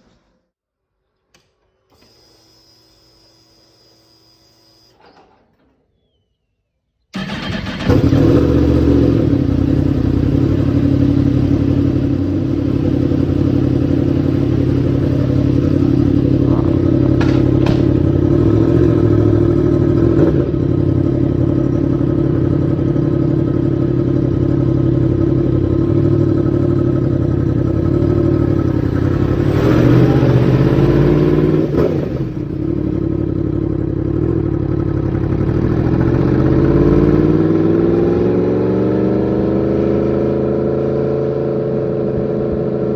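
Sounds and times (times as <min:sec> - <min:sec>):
motorcycle engine idling: 0:07.2 - 0:37.0
motorcycle throttle blip: 0:15.2 - 0:18.5.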